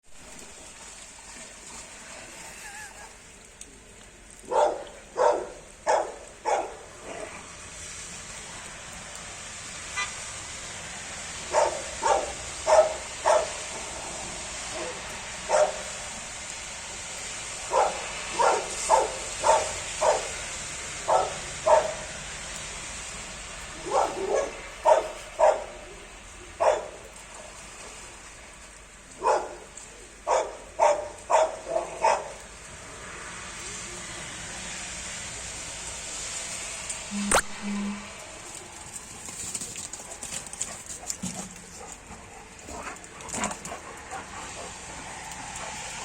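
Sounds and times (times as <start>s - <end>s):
dog barking: 4.5s - 7.3s, 11.5s - 13.6s, 14.8s - 15.9s, 17.7s - 20.4s, 21.1s - 22.0s, 23.8s - 25.8s, 26.6s - 27.0s, 29.2s - 29.7s, 30.3s - 32.4s.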